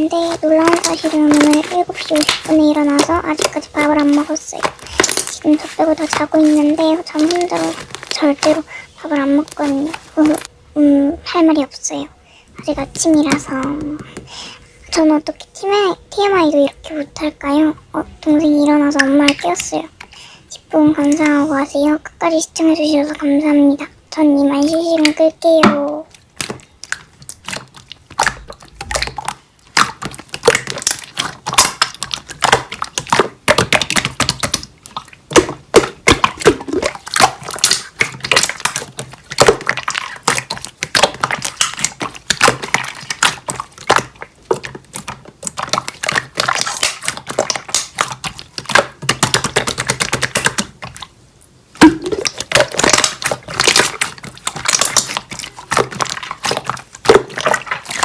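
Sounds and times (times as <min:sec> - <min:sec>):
slime crackling and popping: 0:00.0 - 0:10.5, 0:24.6 - 0:58.0.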